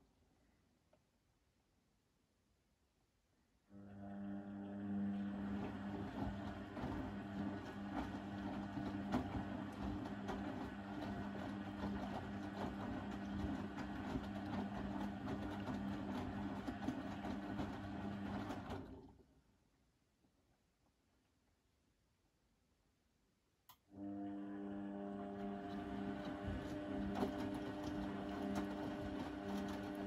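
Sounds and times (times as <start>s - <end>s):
washing machine motor hum: 3.7s - 19.2s, 23.9s - 30.0s.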